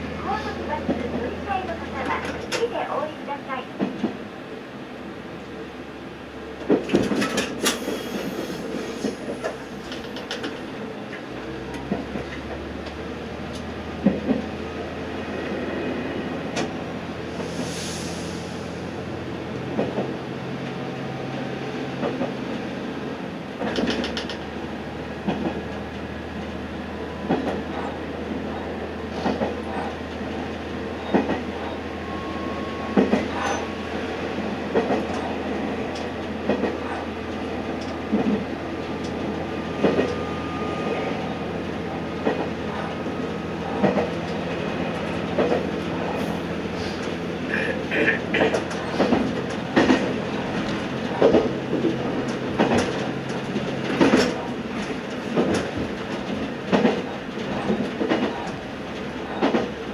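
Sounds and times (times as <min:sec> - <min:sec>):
wheels clacking over rail joints: 0:23.6 - 0:24.5, 0:46.8 - 0:59.9.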